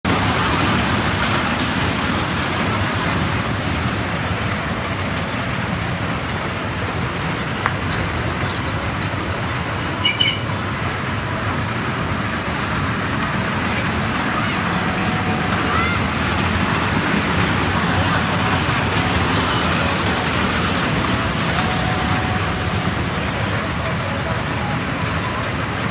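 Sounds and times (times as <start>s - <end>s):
moving train rumble: 0.0s - 25.9s
clicks and high squeaks: 4.1s - 5.2s, 6.8s - 11.0s, 13.2s - 25.9s.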